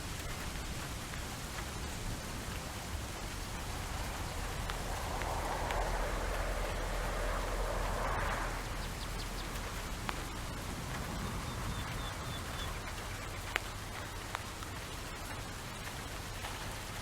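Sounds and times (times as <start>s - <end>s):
sharper rain drops: 0.0s - 17.0s
steady rain falling: 0.0s - 17.0s.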